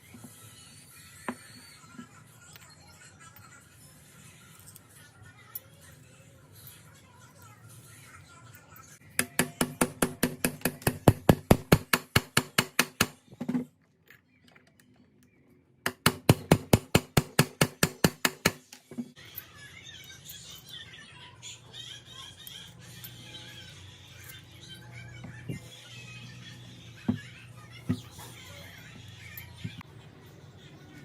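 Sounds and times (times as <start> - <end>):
rotary hammer hammering: 9.1 - 13.2, 15.8 - 18.8.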